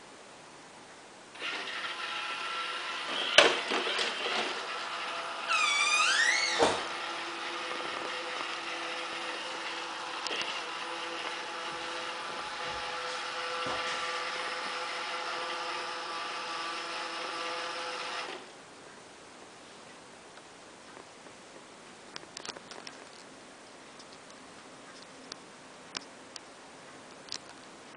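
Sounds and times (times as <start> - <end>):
robot vacuum motor whirring: 1.4 - 18.4.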